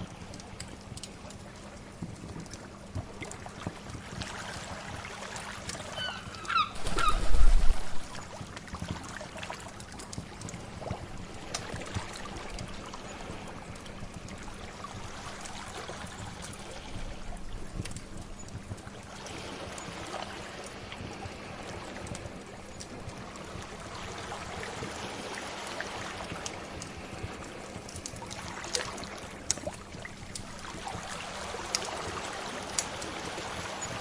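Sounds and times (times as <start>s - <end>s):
fire crackling and popping: 0.0s - 5.9s, 6.8s - 34.0s
sea waves: 3.4s - 18.1s, 18.8s - 34.0s
short bird calls: 5.9s - 7.5s
low rumble: 6.8s - 8.2s.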